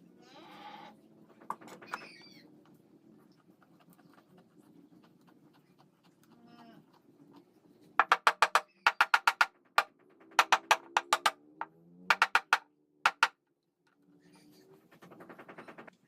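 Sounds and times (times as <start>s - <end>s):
hand tool striking wood: 8.0s - 9.5s, 10.4s - 11.4s, 12.1s - 13.3s.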